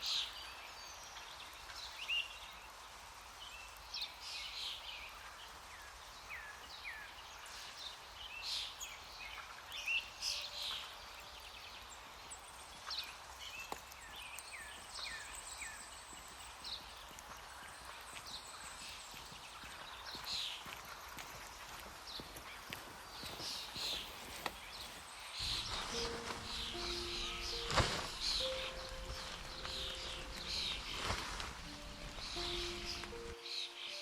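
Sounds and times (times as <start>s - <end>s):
faint outdoor hiss: 0.0s - 34.0s
birds chirping and calling: 24.8s - 34.0s.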